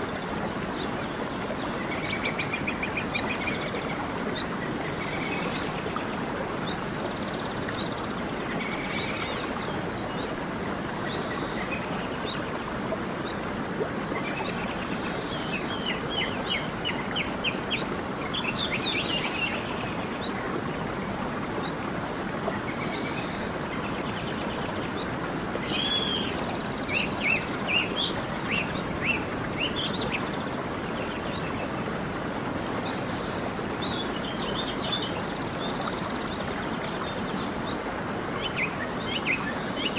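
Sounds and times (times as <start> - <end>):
stream running: 0.0 - 39.9.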